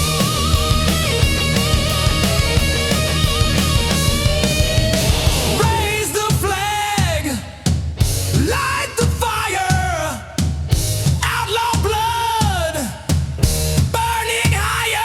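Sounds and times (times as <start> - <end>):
drums and bass: 0.0 - 15.0
rock song: 0.0 - 15.0
person singing and shouting: 5.2 - 7.6, 8.4 - 13.2, 13.9 - 15.0.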